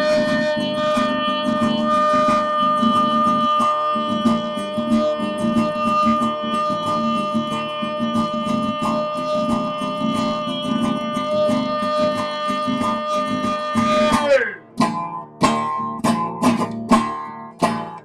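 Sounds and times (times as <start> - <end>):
guitar strummed: 0.0 - 18.0.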